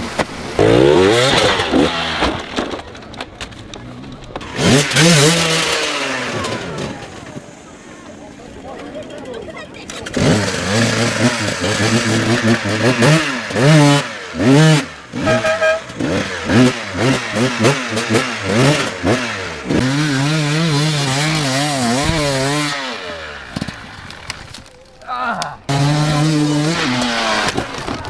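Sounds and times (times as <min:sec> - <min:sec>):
dirt bike engine revving: 0:00.0 - 0:02.9, 0:04.3 - 0:08.3, 0:09.9 - 0:24.6, 0:25.6 - 0:28.0.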